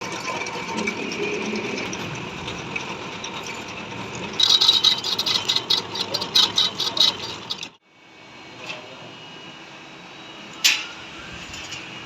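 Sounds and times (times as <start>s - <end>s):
metal lathe whine: 0.0s - 12.0s
cutting tool scraping clatter: 4.2s - 7.7s.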